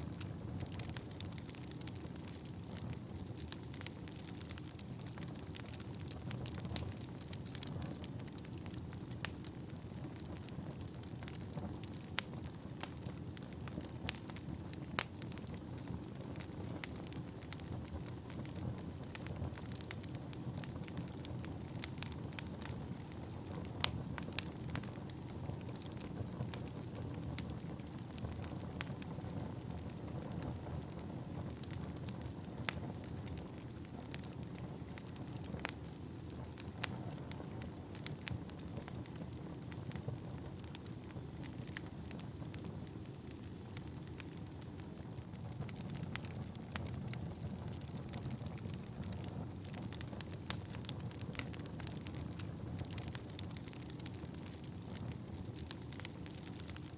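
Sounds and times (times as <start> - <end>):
fire crackling and popping: 0.0 - 56.9
low rumble of flames: 0.0 - 56.9
faint high whistle: 39.7 - 45.2.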